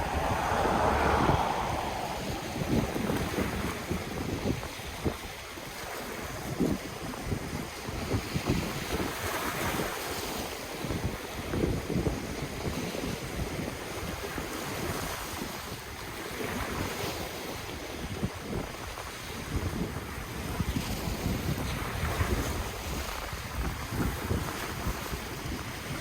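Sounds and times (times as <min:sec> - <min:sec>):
ocean waves on shore: 0:00.0 - 0:04.5
wind buffeting microphone: 0:00.0 - 0:05.3.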